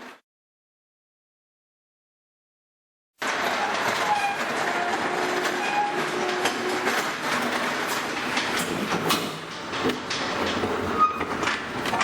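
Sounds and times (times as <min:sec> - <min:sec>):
machine clattering metal panels: 0:03.2 - 0:12.0
metallic squeaks: 0:03.6 - 0:06.2, 0:10.9 - 0:11.4.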